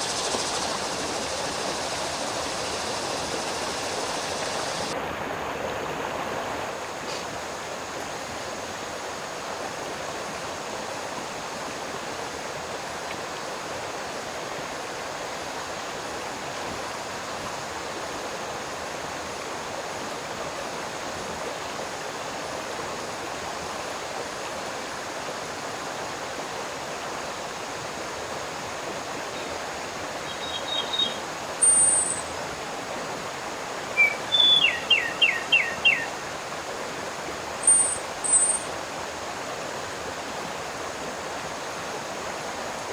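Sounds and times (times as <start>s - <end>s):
running water rushing: 0.0s - 42.9s
high bird chirps: 30.3s - 32.2s, 34.0s - 36.1s, 37.6s - 38.7s.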